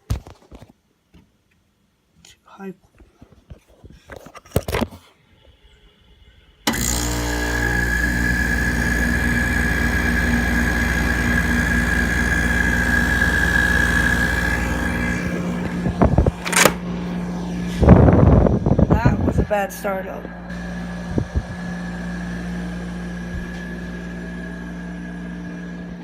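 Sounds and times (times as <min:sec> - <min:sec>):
air conditioner hum and whine: 0:06.2 - 0:26.0.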